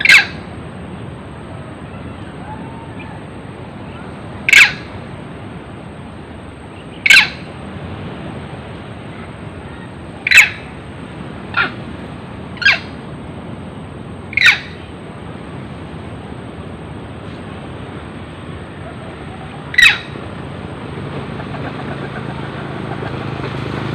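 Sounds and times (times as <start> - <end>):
steady background hiss: 0.0 - 23.9
short sharp animal calls: 9.6 - 10.7, 14.3 - 14.8, 18.8 - 20.2.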